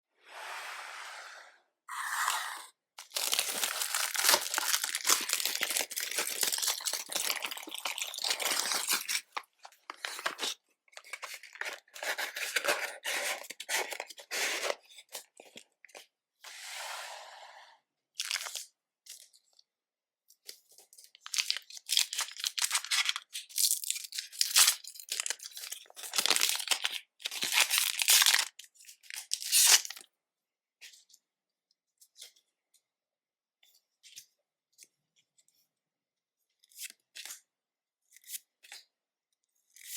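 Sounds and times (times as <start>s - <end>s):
plastic wrapping tearing and crinkling: 3.0s - 12.7s, 18.2s - 18.6s, 21.2s - 30.0s.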